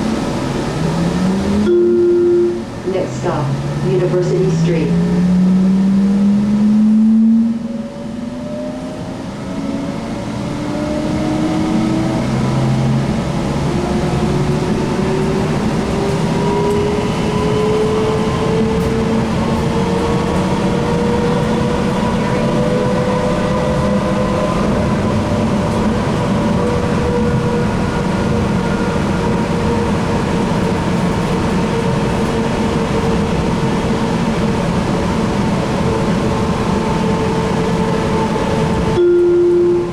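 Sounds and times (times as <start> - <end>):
train wheels rumbling on rails: 7.6 - 39.0.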